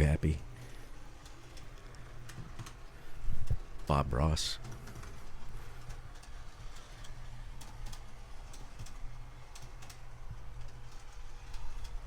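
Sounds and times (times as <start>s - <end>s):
model train wheels clicking on rails: 4.6s - 12.0s.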